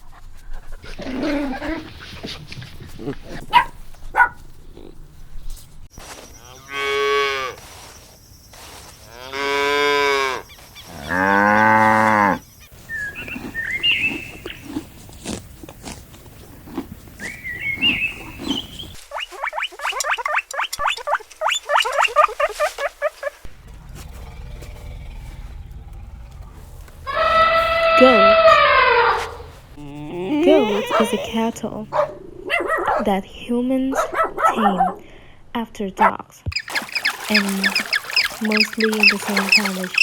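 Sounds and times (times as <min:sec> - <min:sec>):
cows mooing: 0:09.2 - 0:12.4, 0:23.6 - 0:31.5, 0:37.1 - 0:40.0
high chirps: 0:36.5 - 0:40.0
quick short calls: 0:36.5 - 0:40.0.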